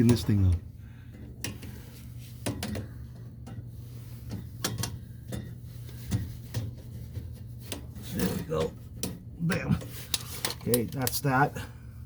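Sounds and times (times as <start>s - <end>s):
steady low hum: 0.0s - 12.0s
metal parts clicking and knocking: 8.0s - 11.3s.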